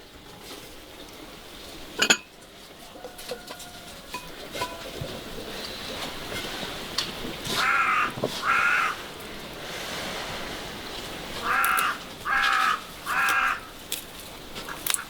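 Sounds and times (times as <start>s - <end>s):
crow cawing: 7.6s - 9.1s, 11.4s - 13.8s.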